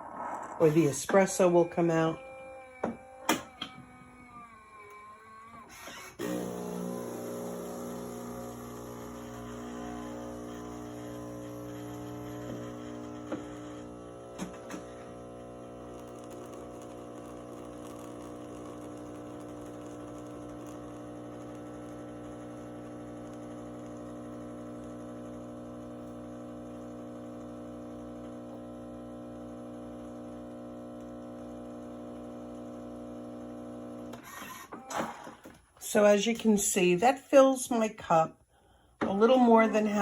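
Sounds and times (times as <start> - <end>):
coffee machine pumping hum: 5.7 - 35.5.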